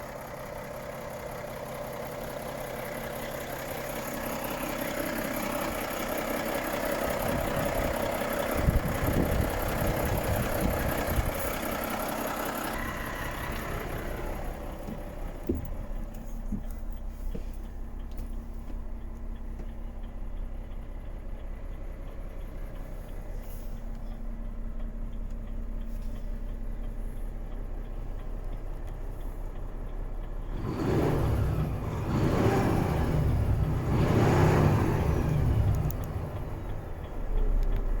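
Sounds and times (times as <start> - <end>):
diesel truck engine idling: 0.0 - 38.0
truck engine revving: 30.5 - 38.0.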